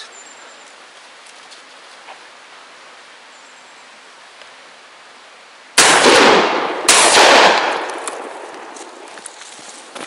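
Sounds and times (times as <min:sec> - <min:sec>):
gunshots with echo: 0:05.8 - 0:08.0.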